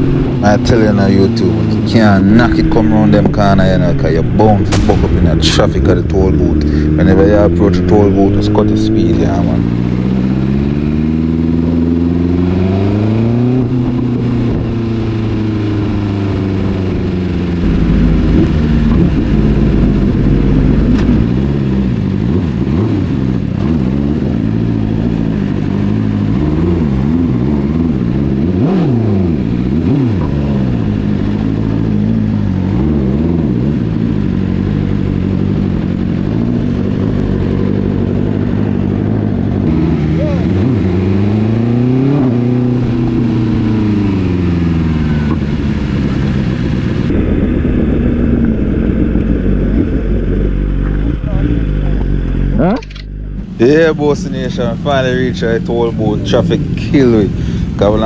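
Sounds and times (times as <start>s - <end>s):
motorbike engines revving: 0.0s - 58.0s.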